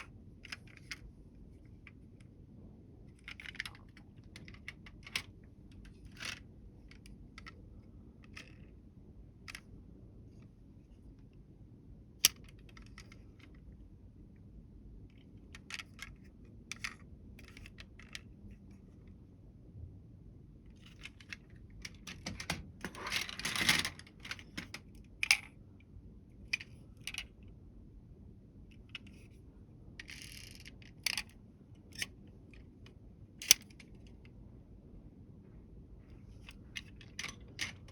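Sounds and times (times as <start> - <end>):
toy vehicles clicking and clattering: 20.9 - 25.5, 30.0 - 31.3, 36.5 - 37.9.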